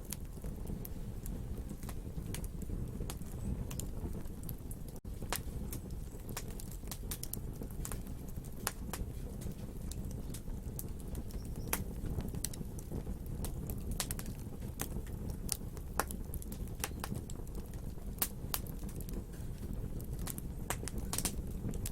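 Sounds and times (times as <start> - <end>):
low rumble of flames: 0.0 - 21.9
wood fire crackling: 0.0 - 21.9.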